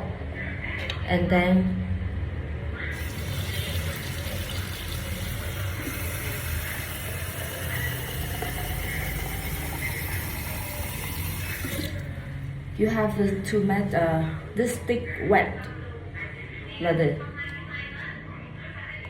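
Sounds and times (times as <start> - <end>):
tap water running: 2.9 - 12.2.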